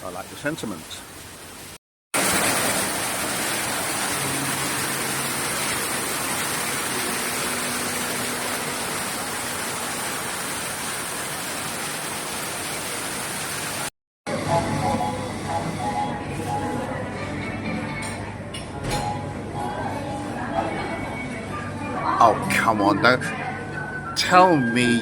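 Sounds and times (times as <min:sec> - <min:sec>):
waterfall rushing: 0:02.2 - 0:13.9.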